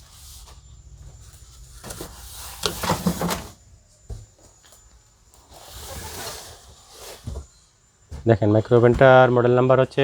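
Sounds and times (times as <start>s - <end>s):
rubbing and scraping: 1.5s - 3.6s.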